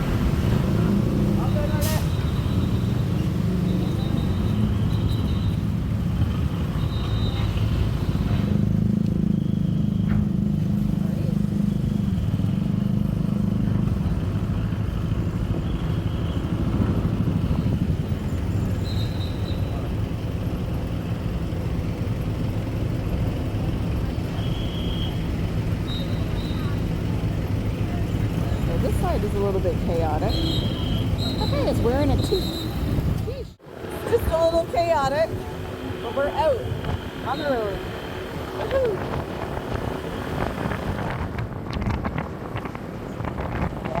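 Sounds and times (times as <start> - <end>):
vehicle engines rumbling: 0.0 - 44.0
wind rumble on microphone: 13.9 - 18.8, 38.3 - 44.0.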